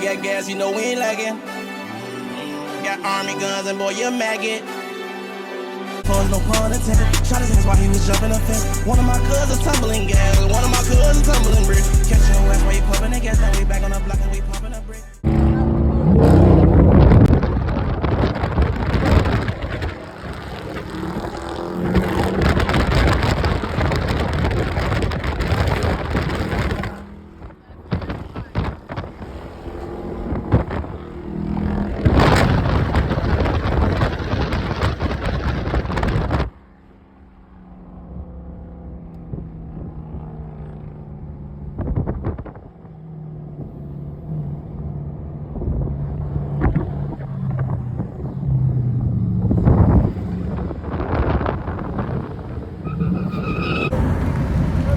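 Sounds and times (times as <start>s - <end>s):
road and wind noise: 0.0s - 54.9s
car engine running: 6.1s - 42.6s, 46.6s - 54.9s
gusts of noise: 15.2s - 36.6s, 45.6s - 54.9s.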